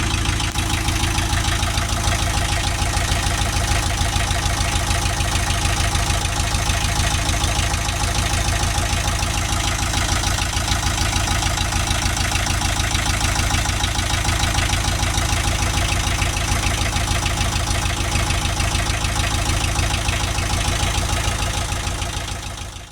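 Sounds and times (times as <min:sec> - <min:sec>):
diesel engine idling: 0:00.0 - 0:22.9.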